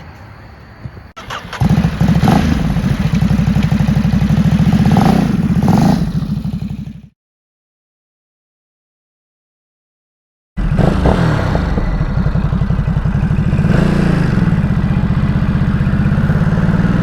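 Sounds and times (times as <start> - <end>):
motorcycle engine revving: 1.2 - 7.2, 10.6 - 17.0.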